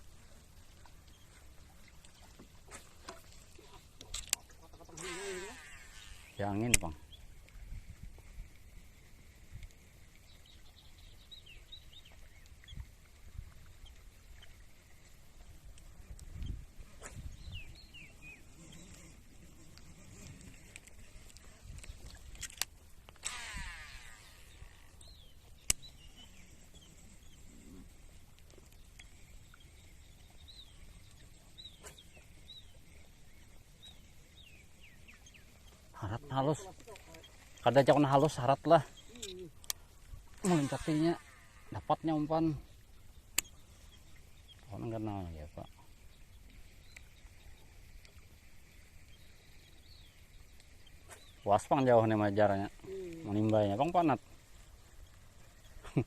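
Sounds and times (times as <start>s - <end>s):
sharp click: 6.6s - 6.9s
wind buffeting microphone: 7.5s - 8.5s, 16.2s - 18.4s
high chirping bird calls: 38.9s - 39.6s.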